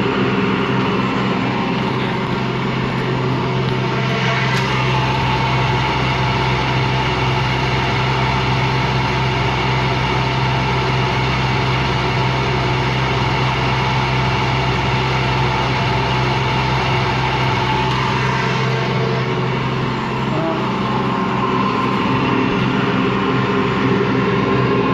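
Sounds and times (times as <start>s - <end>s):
washing machine spinning with grinding: 0.0s - 24.9s.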